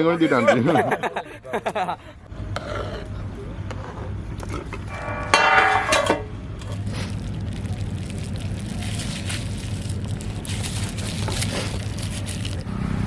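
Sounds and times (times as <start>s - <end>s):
faint fire crackles: 6.5s - 12.7s.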